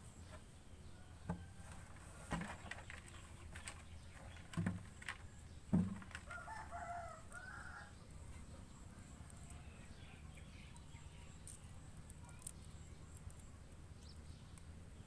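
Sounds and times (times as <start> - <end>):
short knocks: 4.4 - 6.4.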